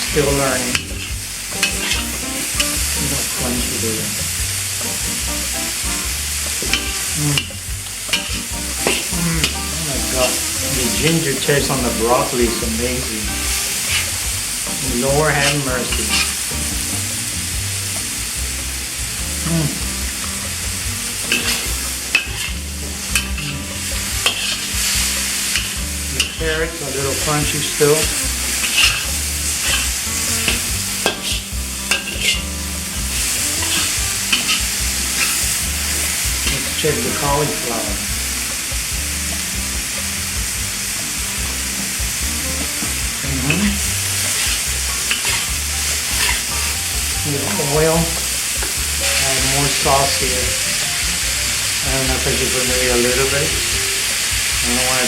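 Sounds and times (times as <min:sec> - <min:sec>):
food sizzling in oil in a pan: 0:00.0 - 0:55.0
utensil scraping a pan: 0:00.1 - 0:17.4, 0:21.2 - 0:38.2, 0:42.8 - 0:50.6.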